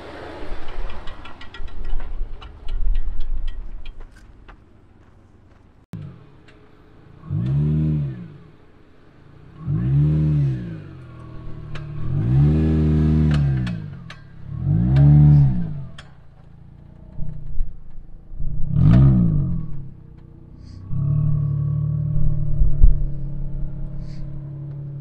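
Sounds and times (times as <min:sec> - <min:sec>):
car engine revving: 0:06.0 - 0:25.0.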